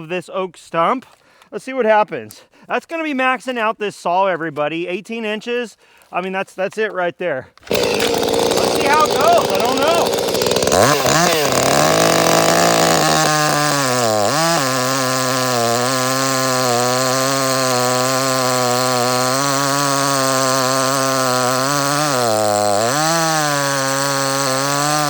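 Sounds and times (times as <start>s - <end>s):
chainsaw cutting wood: 7.6s - 25.0s.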